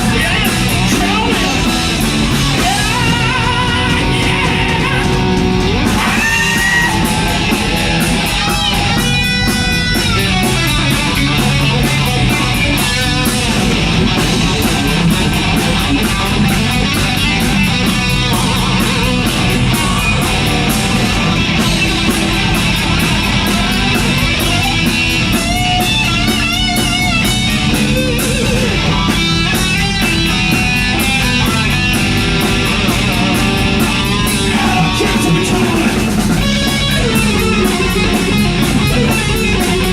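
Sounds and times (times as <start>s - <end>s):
bass guitar: 0.0s - 39.9s
drum beat: 0.0s - 39.9s
electric guitar lead: 0.0s - 39.9s.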